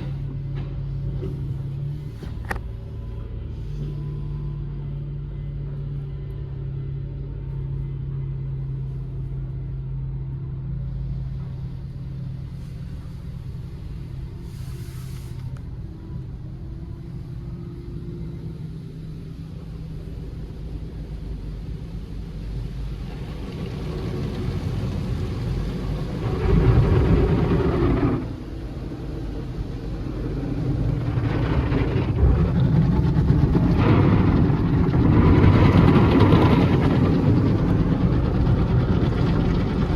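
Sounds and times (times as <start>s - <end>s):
car wash washing noise: 0.0s - 4.2s, 8.8s - 39.9s
car wash machinery hum: 0.0s - 39.9s.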